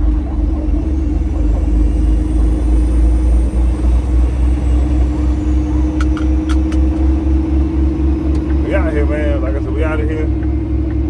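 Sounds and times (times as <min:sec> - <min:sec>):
constant hum: 0:00.0 - 0:11.0
road rumble: 0:00.0 - 0:11.0
truck engine drone: 0:00.0 - 0:11.0
light clicks: 0:06.0 - 0:07.2.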